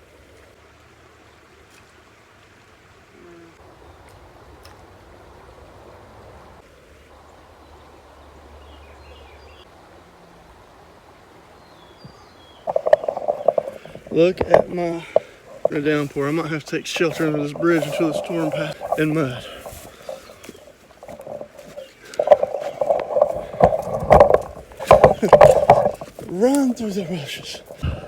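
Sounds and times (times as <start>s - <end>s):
water washing: 12.6s - 28.0s.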